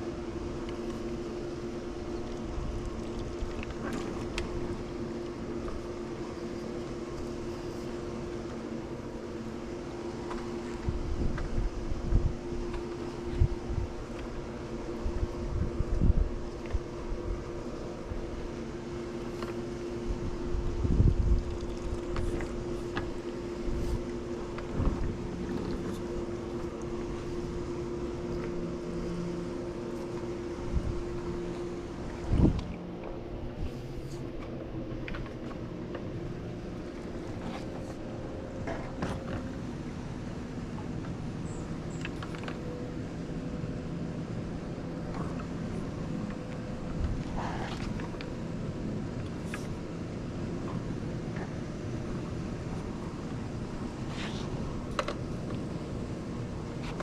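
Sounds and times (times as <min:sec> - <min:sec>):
pool pump humming: 0:00.0 - 0:57.0.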